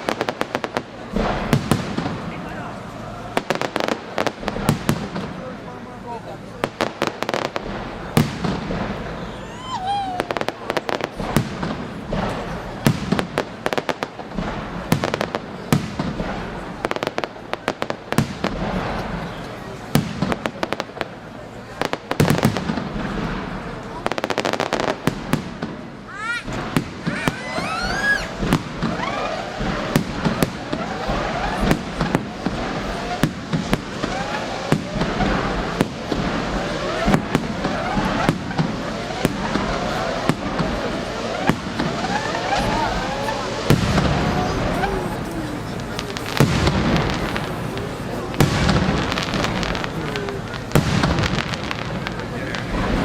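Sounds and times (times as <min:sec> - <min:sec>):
continuous rumble: 0:00.0 - 0:53.0
fireworks cracks and bangs: 0:00.0 - 0:53.0
heavy firework booms: 0:00.0 - 0:53.0
firework whistles gliding in pitch: 0:09.0 - 0:11.1, 0:26.8 - 0:35.8, 0:36.6 - 0:51.8.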